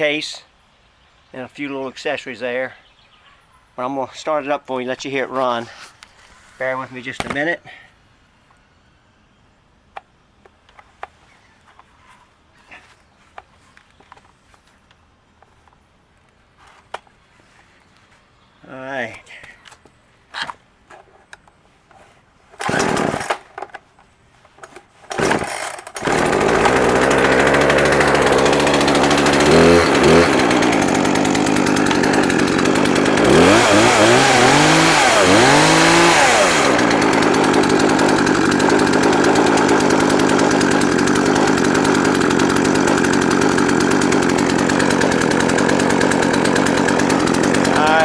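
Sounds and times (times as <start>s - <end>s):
chainsaw idling and revving: 22.6s - 23.5s, 25.1s - 48.0s
chainsaw pull cord: 22.6s - 23.8s, 24.6s - 48.0s.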